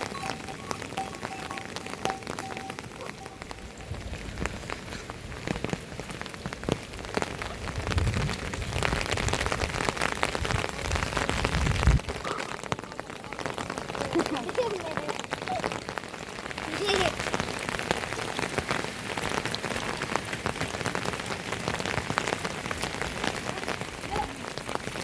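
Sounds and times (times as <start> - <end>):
heavy rain on hard surfaces: 0.0 - 25.0.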